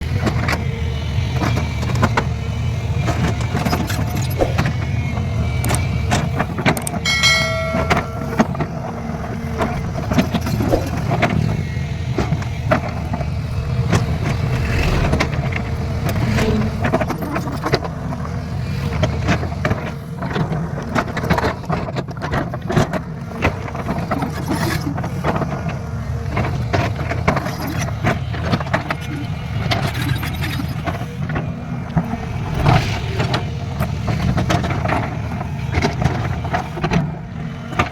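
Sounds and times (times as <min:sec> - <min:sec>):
metallic knocks and clanks: 0:06.8 - 0:08.7
brief shrill tone: 0:07.0 - 0:08.7
diesel engine running: 0:10.8 - 0:18.8.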